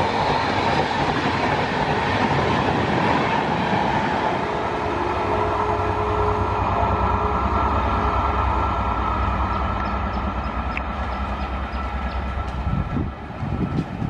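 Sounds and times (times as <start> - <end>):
train coaches rumbling over rails: 0.0 - 14.0.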